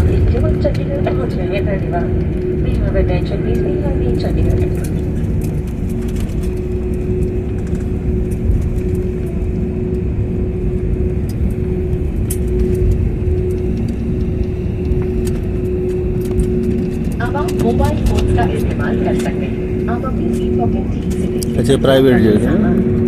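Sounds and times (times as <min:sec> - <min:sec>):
airliner cabin engine rumble: 0:00.0 - 0:23.0.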